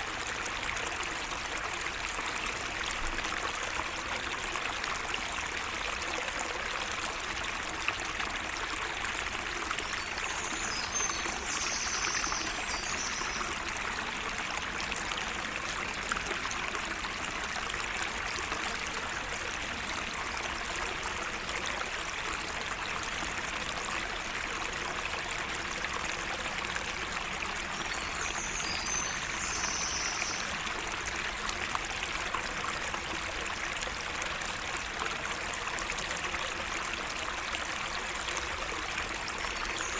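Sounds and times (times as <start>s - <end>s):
small waterway running: 0.0s - 39.9s
bird singing: 10.0s - 13.4s, 28.1s - 30.5s.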